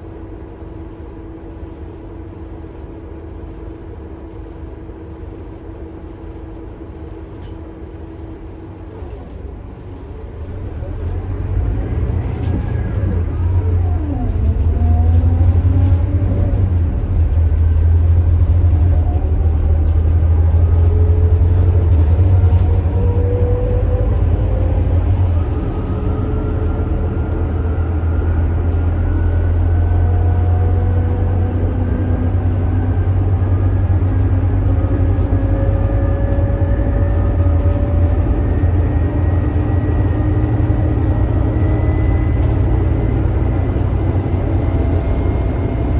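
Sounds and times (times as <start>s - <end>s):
bus diesel engine rumbling: 0.0s - 45.9s
engine whine rising in pitch: 10.4s - 45.9s.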